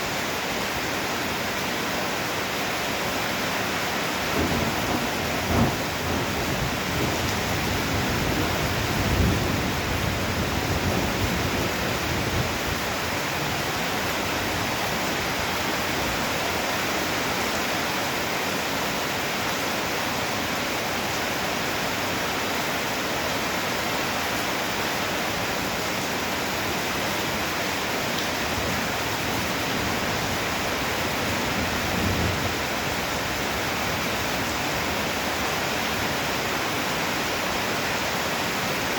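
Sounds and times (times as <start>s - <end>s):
heavy rain pouring: 0.0s - 38.9s
low thunder rumbling: 4.0s - 16.3s, 28.4s - 35.4s.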